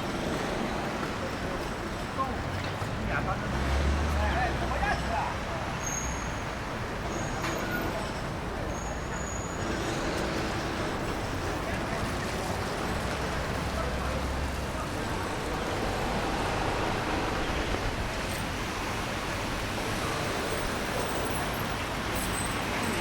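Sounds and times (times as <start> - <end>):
traffic on wet roads: 0.0 - 23.0
people's voices: 6.9 - 23.0.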